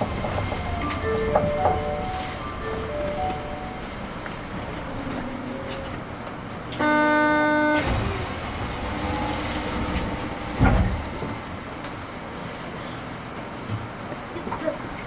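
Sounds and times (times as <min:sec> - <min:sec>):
tram cabin running noise: 0:00.0 - 0:15.0
loud steady pitched tone: 0:06.8 - 0:08.1.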